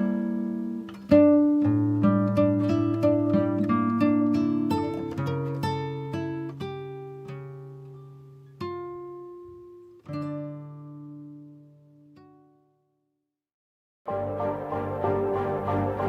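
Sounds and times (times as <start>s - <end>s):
plucked acoustic guitar: 0.0s - 12.6s.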